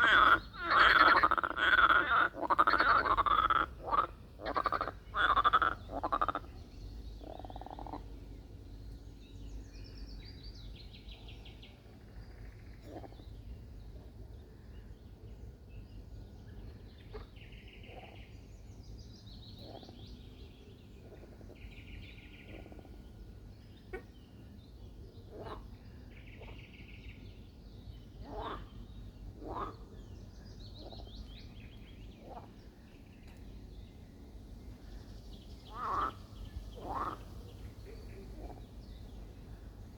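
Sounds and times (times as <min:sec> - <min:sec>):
rattling pulsed frog calls: 0:00.0 - 0:06.5, 0:07.2 - 0:08.0, 0:35.7 - 0:36.2, 0:36.8 - 0:37.2
frogs croaking: 0:00.0 - 0:08.2, 0:11.9 - 0:13.2, 0:25.3 - 0:26.6, 0:28.2 - 0:30.0, 0:35.6 - 0:39.5.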